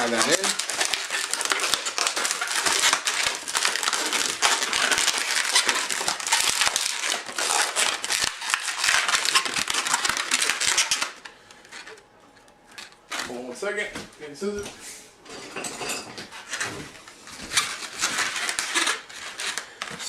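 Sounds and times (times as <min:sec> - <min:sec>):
balloon rubber squeaking: 0:00.0 - 0:11.2, 0:16.4 - 0:19.6.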